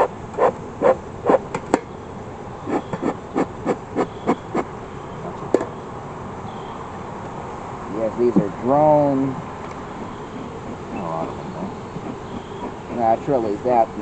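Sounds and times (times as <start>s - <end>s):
smoker bellows puffing: 2.6s - 4.7s, 8.0s - 14.0s.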